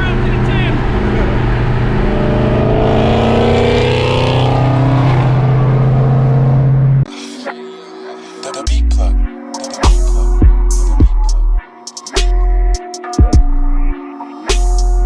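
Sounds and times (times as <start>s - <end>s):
engine running loudly: 0.0s - 7.1s
engine whine: 0.0s - 7.1s.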